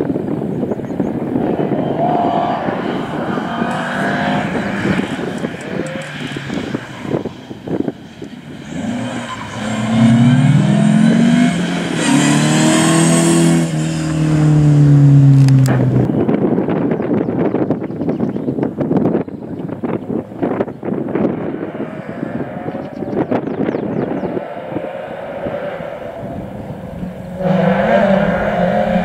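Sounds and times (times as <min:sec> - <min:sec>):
rally car engine accelerating: 0:01.1 - 0:16.1, 0:21.0 - 0:29.0.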